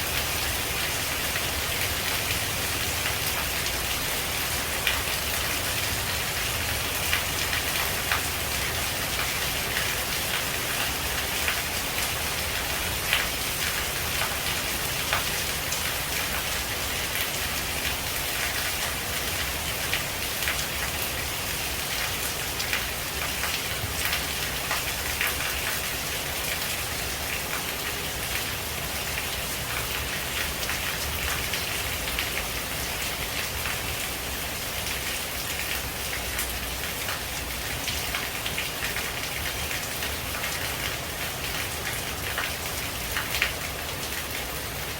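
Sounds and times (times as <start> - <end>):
rain falling on leaves: 0.0 - 44.9.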